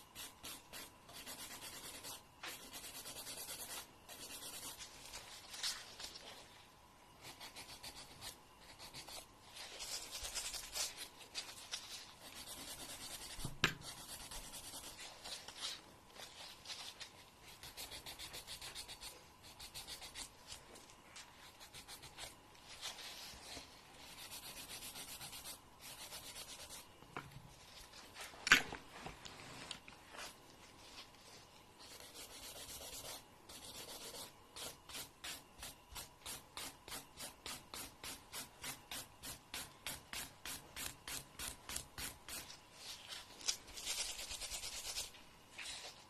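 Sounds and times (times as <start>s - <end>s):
nail file rubbing: 0.2s - 5.0s, 7.2s - 15.6s, 16.2s - 20.4s, 21.4s - 23.2s, 24.0s - 26.9s, 31.8s - 42.5s, 43.7s - 45.1s.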